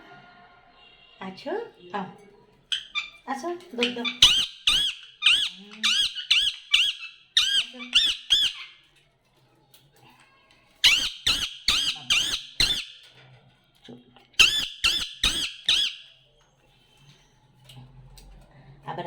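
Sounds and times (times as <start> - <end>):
parrot squawking: 2.7 - 3.2, 3.8 - 8.8, 10.8 - 13.0, 14.4 - 16.0.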